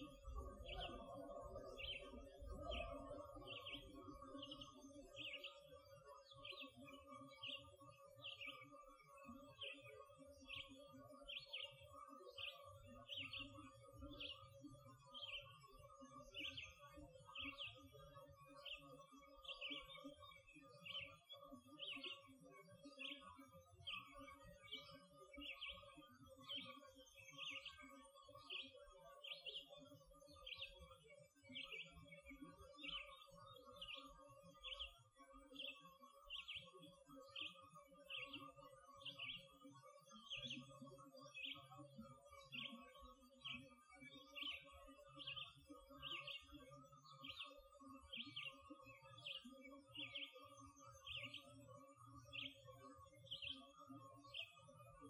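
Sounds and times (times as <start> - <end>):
bird chirping: 0.0 - 5.6, 43.4 - 51.6.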